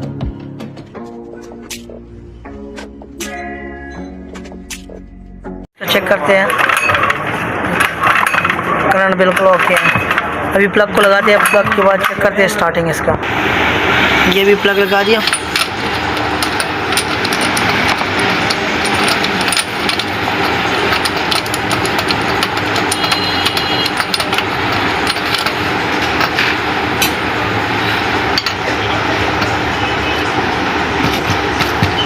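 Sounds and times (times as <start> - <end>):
generator engine running: 13.3 - 32.0.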